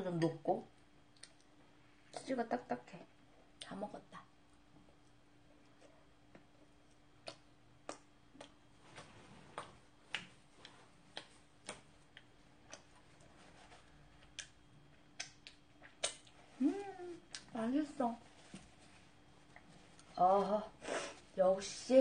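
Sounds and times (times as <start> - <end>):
low steady hum: 0.0 - 22.0
chewing clicks: 7.2 - 12.9, 14.2 - 16.4.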